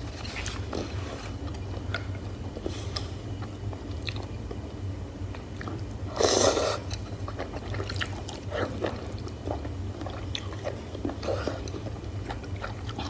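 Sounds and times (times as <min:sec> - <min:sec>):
steady low hum: 0:00.0 - 0:13.0
person chewing food: 0:05.3 - 0:13.0.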